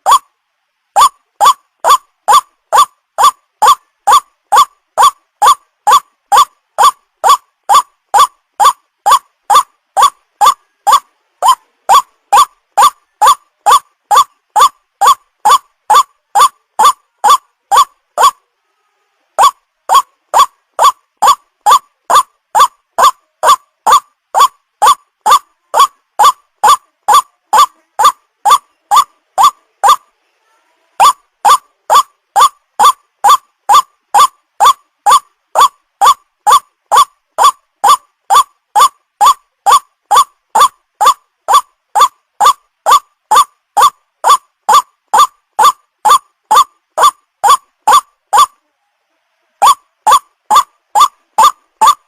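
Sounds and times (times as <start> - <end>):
waterhen calling: 0.0 - 0.3, 1.0 - 18.4, 19.4 - 30.0, 31.0 - 48.5, 49.6 - 52.0.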